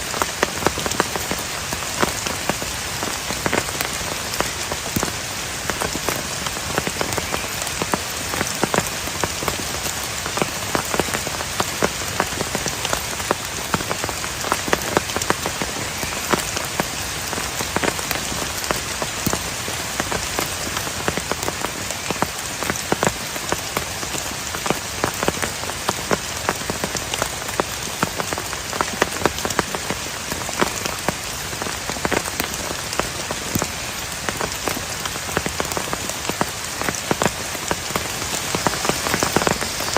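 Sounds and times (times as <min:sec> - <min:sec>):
heavy rain: 0:00.0 - 0:39.9
raindrops clicking on a surface: 0:00.0 - 0:39.9.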